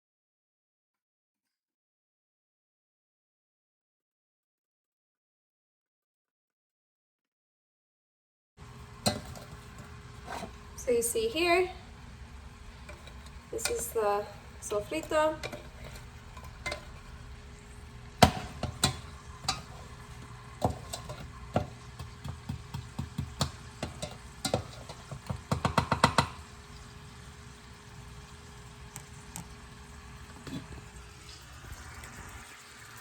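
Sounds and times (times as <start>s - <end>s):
utensil knocking against a pan: 9.0s - 10.6s, 18.1s - 26.5s.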